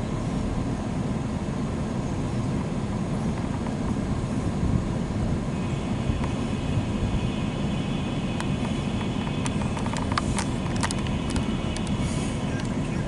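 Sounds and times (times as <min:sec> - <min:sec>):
train cars rumbling on rails: 0:00.0 - 0:13.0
wheels clicking and squeaking: 0:08.2 - 0:13.0.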